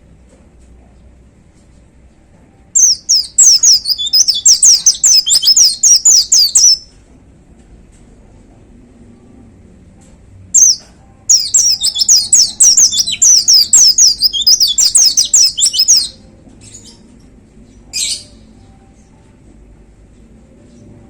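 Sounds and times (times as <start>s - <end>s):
bird singing whistled notes: 2.8s - 6.9s, 10.6s - 16.2s.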